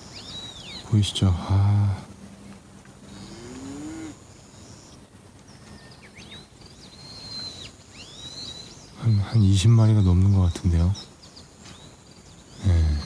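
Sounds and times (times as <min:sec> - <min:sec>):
cow mooing: 0:03.2 - 0:04.2
whistled bird calls: 0:07.0 - 0:09.4.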